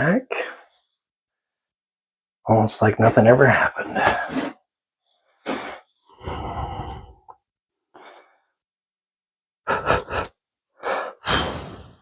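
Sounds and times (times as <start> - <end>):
puffs of blown air: 9.7 - 12.0.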